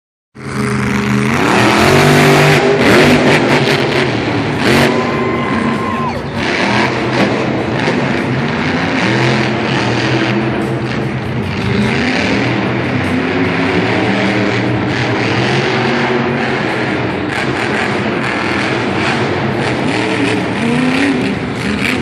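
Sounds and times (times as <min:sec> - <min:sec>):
monster truck engine revving: 0:00.4 - 0:22.0
arena crowd noise: 0:00.5 - 0:22.0.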